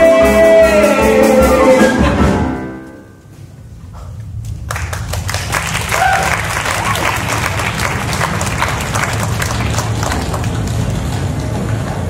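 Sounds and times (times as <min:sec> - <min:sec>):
audience applause: 0:04.6 - 0:12.0.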